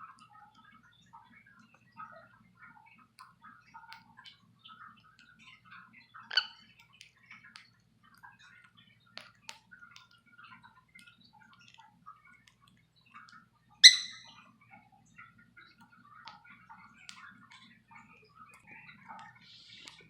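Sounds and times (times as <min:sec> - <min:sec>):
budgies chirping: 0:13.8 - 0:14.2.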